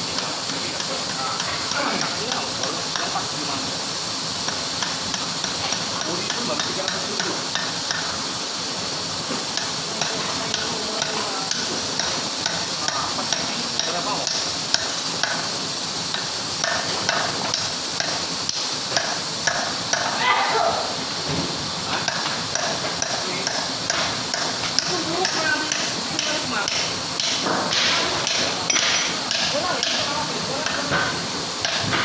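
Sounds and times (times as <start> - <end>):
steady hiss: 0.0 - 32.0
clicks and taps of hand tools: 21.9 - 32.0.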